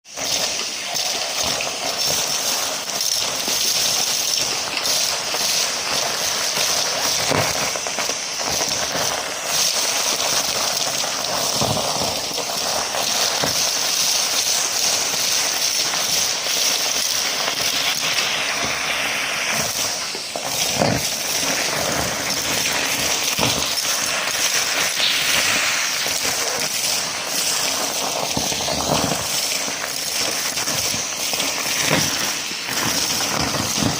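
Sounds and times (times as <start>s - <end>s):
debris rattling through hose: 0.1s - 33.9s
vacuum cleaner whining: 17.5s - 33.9s.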